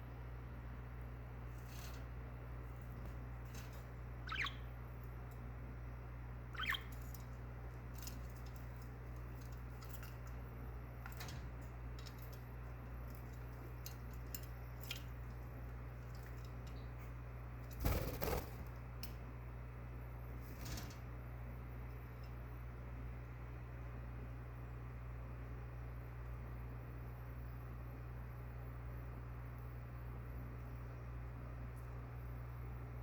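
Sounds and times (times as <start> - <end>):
steady low hum: 0.0 - 33.0
budgerigar chirps: 4.3 - 4.7, 6.5 - 6.9.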